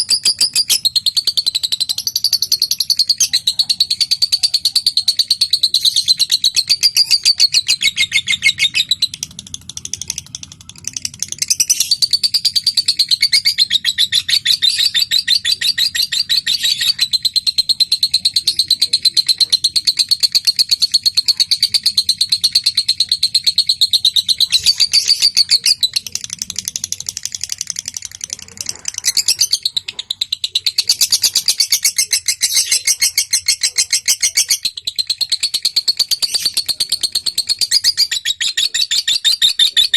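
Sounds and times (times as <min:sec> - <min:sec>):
lovebird chattering trills: 0:00.0 - 0:39.9.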